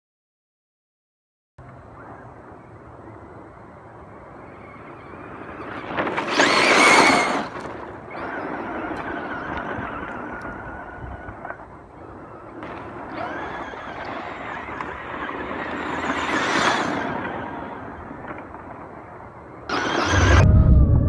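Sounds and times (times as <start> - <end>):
rc car motor whine: 1.6 - 20.5
tyre noise: 5.4 - 10.3
loud rush of noise: 19.8 - 21.0.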